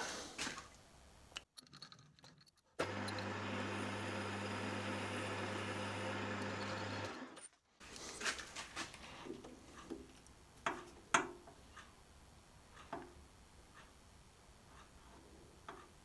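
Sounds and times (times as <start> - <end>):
metal lathe running: 2.8 - 7.3.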